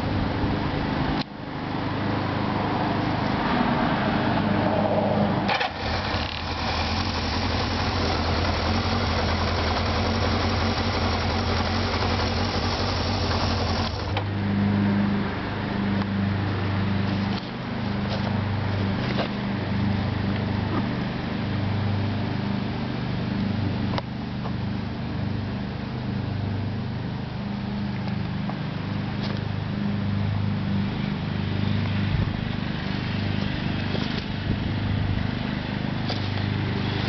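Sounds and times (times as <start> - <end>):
motorcycle engine idling: 5.5 - 14.4.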